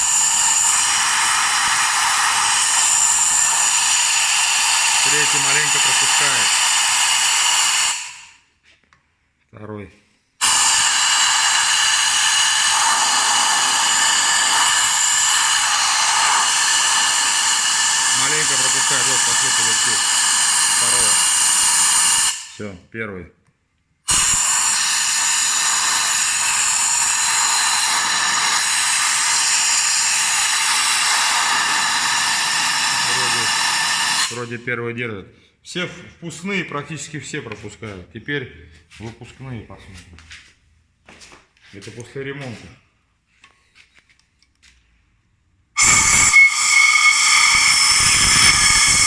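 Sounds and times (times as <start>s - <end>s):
compressed air hissing: 0.0s - 8.5s, 10.4s - 22.7s, 24.1s - 34.6s, 45.8s - 49.0s.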